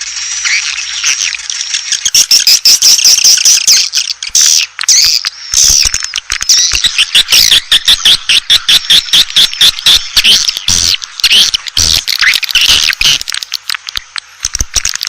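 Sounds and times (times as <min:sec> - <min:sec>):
swiftlets twittering: 0:00.4 - 0:15.0
rapid short clicks: 0:04.3 - 0:15.0.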